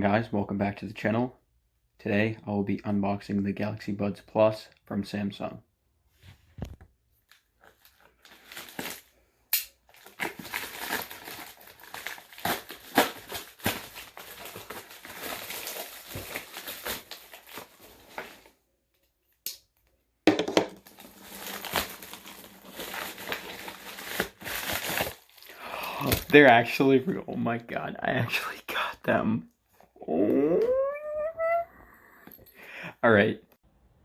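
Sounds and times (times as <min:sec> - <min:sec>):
packaging crinkling and tearing: 0:07.2 - 0:18.6, 0:20.8 - 0:26.7.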